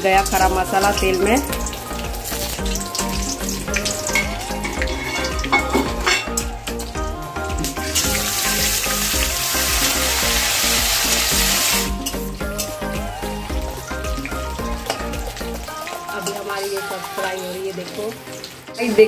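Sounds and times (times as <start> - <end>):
nuts sizzling in hot oil: 0.0 - 6.9, 7.8 - 12.8, 13.8 - 19.0
background music with steady beat: 0.0 - 19.0
metal spatula stirring: 2.7 - 6.5.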